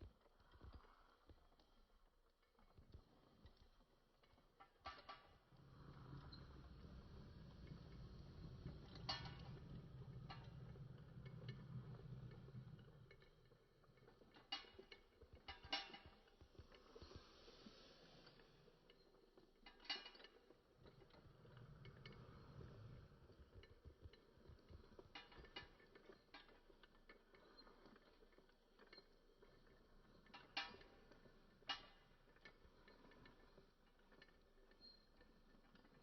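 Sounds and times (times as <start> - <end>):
metal toy truck clicking and rattling: 14.1 - 16.4, 19.6 - 20.4.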